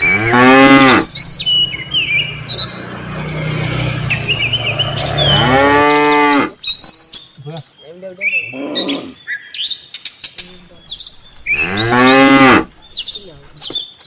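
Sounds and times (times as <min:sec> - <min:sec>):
cattle mooing: 0:00.0 - 0:01.2, 0:04.8 - 0:06.6, 0:10.5 - 0:13.6
small birds chirping: 0:00.0 - 0:14.0.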